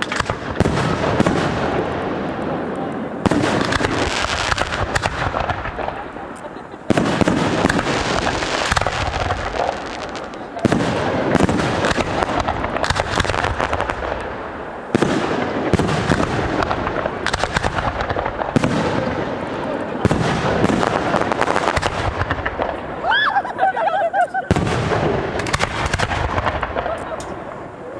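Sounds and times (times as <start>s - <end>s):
fireworks crackling and popping: 0.0s - 23.6s, 24.2s - 27.9s.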